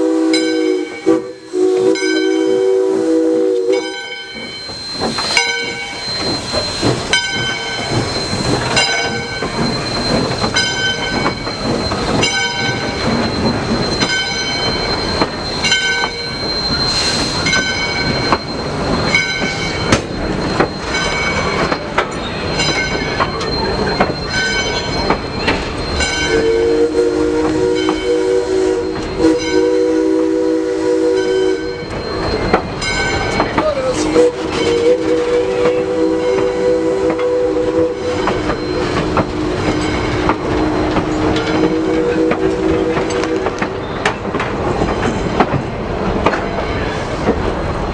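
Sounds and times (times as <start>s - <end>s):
steam whistle blast: 0.0s - 6.7s, 26.2s - 31.8s, 34.0s - 39.6s, 40.2s - 43.6s
locomotive bell ringing: 0.3s - 3.0s, 3.6s - 45.4s.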